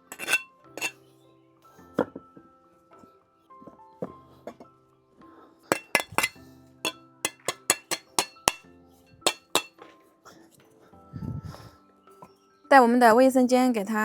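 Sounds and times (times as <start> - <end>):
bricks clinking: 0.0 - 0.9, 5.7 - 6.4, 7.3 - 8.6, 9.3 - 9.7.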